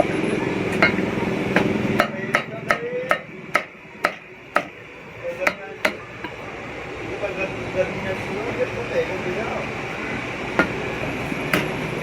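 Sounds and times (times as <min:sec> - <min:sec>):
cleaver chopping meat on wood: 0:00.8 - 0:04.8, 0:10.6 - 0:10.8, 0:11.5 - 0:12.0.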